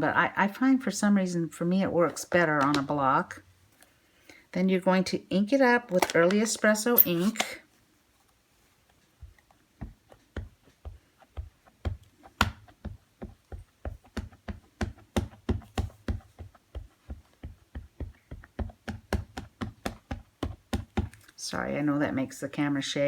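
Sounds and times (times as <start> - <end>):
rubber stamp tapping on ink pad: 17.8 - 21.2.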